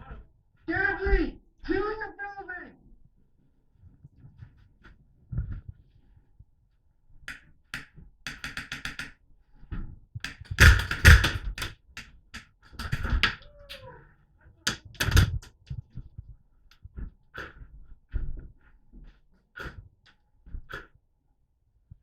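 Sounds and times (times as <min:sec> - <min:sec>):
rustling and knocking on microphone: 0:07.3 - 0:13.5, 0:14.7 - 0:16.3
rapid airsoft gunfire: 0:10.5 - 0:11.7.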